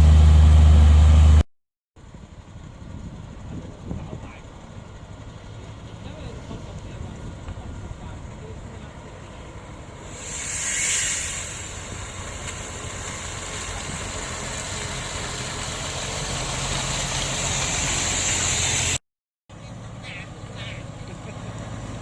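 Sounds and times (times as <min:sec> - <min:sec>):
heavy diesel engine running: 0:00.0 - 0:01.4, 0:02.0 - 0:19.0
burst of hiss: 0:10.0 - 0:12.7.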